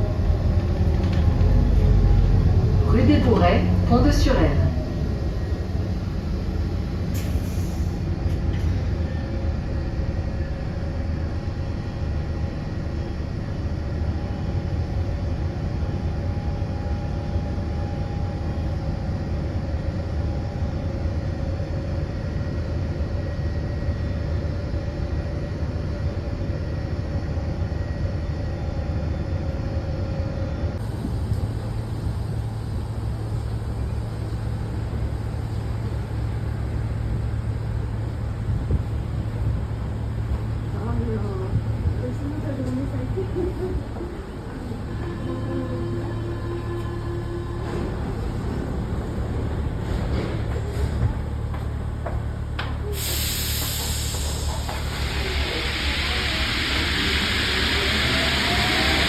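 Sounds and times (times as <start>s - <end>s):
vehicle rumble: 0.0s - 10.8s, 30.8s - 55.8s.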